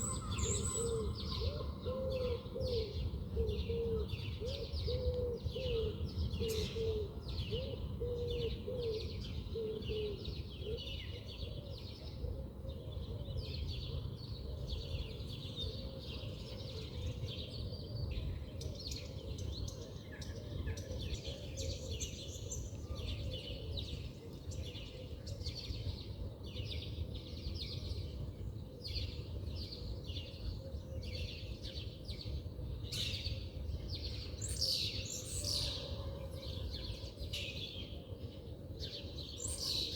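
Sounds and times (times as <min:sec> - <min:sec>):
low wavering bird call: 0:00.0 - 0:02.9
small birds chirping: 0:00.0 - 0:05.8.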